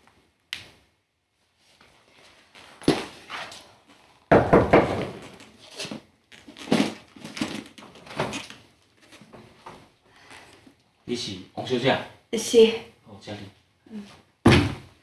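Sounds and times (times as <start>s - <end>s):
sudden thuds and knocks: 4.3s - 5.4s, 14.4s - 15.0s.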